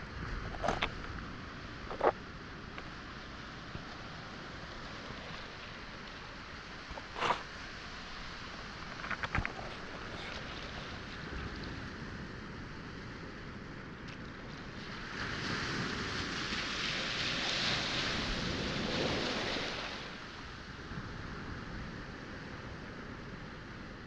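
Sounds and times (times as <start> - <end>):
waves washing onto pebble shore: 0.0 - 23.7.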